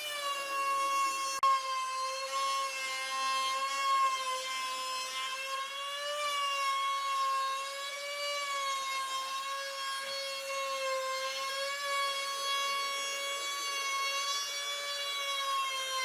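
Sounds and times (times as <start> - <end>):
power tool whining on wood: 0.0 - 16.0.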